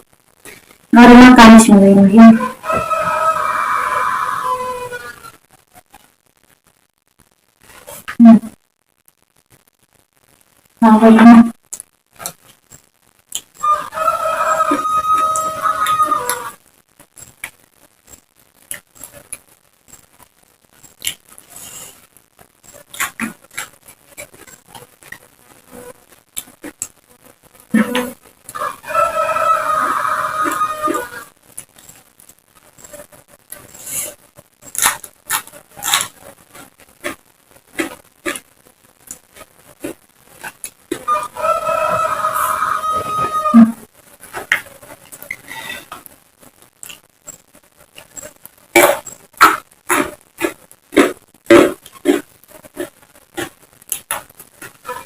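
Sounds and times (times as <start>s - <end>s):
rooster crowing: 2.3s - 5.3s, 13.6s - 16.6s, 28.5s - 31.3s, 40.9s - 43.8s
crunching and chewing: 22.7s - 25.2s, 34.6s - 43.4s, 46.8s - 55.0s.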